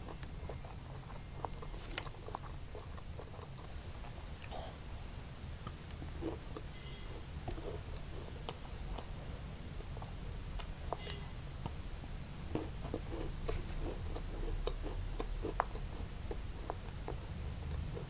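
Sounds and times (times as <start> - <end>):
chewing crisp pastry: 0.0 - 4.8, 12.5 - 18.0.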